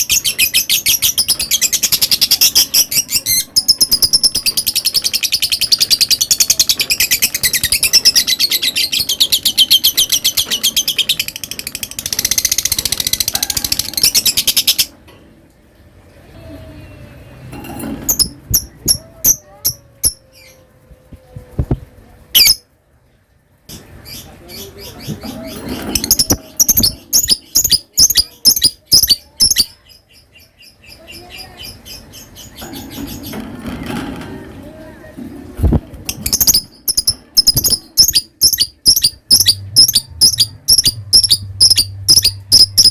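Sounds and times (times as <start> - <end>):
lovebird chattering trill: 18.1 - 20.6, 22.4 - 22.6, 25.4 - 29.8, 36.1 - 42.9.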